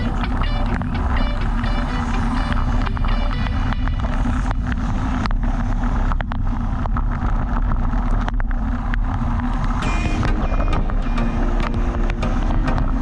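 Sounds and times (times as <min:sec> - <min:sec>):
faint hum: 0:00.0 - 0:07.6, 0:09.2 - 0:13.0.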